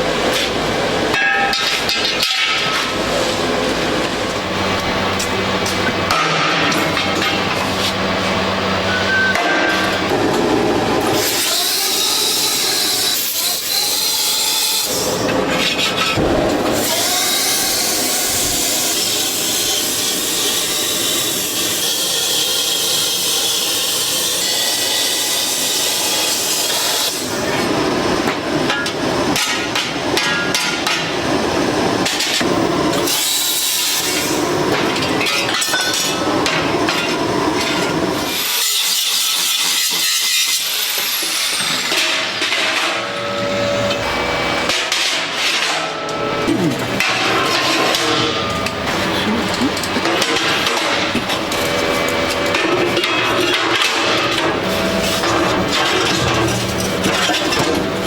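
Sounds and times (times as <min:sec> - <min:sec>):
metal grinding hiss: 0:10.5 - 0:27.3.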